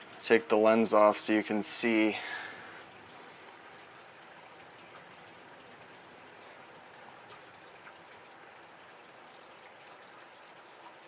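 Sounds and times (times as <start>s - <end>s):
rain hissing: 0.0s - 3.5s.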